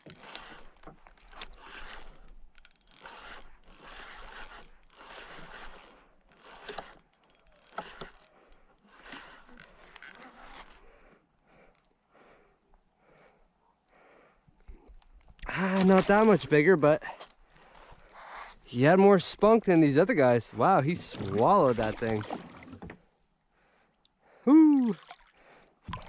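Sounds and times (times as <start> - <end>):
fishing reel clicking and whirring: 0.0 - 11.0.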